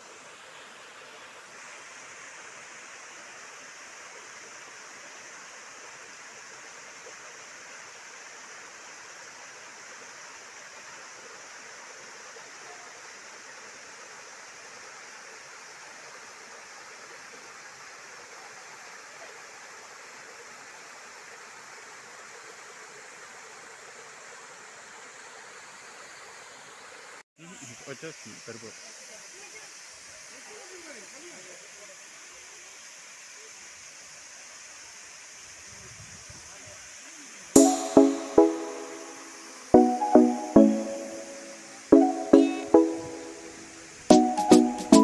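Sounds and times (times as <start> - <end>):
waterfall pouring onto rocks: 27.8 - 38.0.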